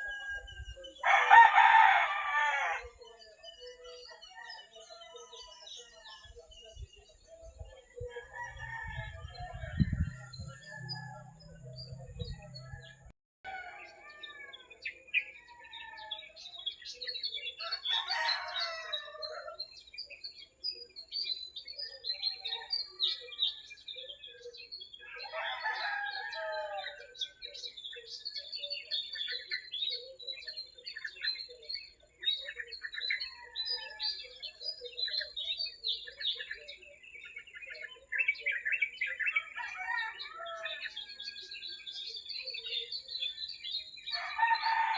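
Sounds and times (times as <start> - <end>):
rooster crowing: 0.0 - 2.9, 8.1 - 11.5, 17.6 - 19.6, 25.2 - 27.0, 39.5 - 41.0, 44.1 - 44.9
small birds chirping: 0.0 - 44.9.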